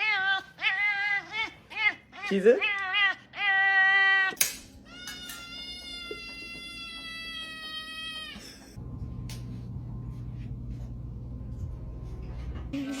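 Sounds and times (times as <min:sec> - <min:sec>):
animal high-pitched cry: 0:00.0 - 0:08.6.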